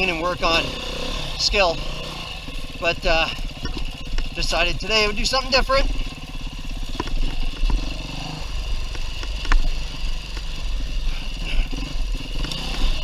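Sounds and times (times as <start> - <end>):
dirt bike engine running: 0.0 - 13.0.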